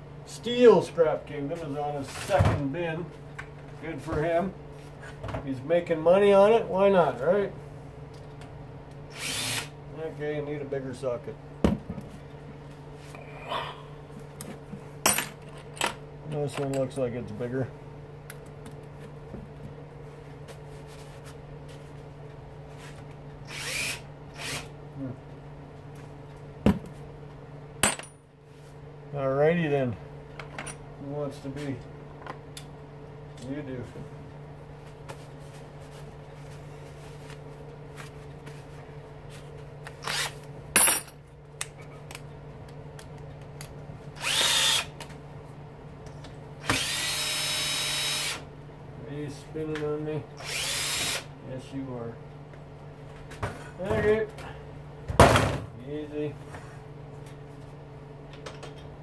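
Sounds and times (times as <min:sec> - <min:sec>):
steady low hum: 0:00.0 - 0:59.0
power drill running: 0:09.1 - 0:09.7, 0:23.5 - 0:24.7, 0:40.0 - 0:40.4, 0:44.2 - 0:44.9, 0:46.6 - 0:48.4, 0:50.4 - 0:51.3.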